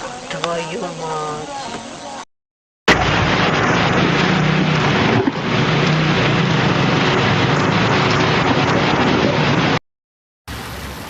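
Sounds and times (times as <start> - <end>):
loud rush of wind noise: 2.9 - 9.8
low engine drone: 2.9 - 9.8.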